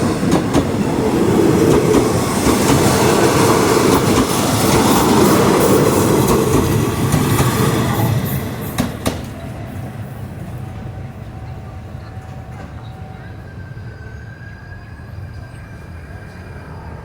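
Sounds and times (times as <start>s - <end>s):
train rail noise rumbling: 0.0s - 17.0s
train wheel knocks: 8.7s - 9.4s.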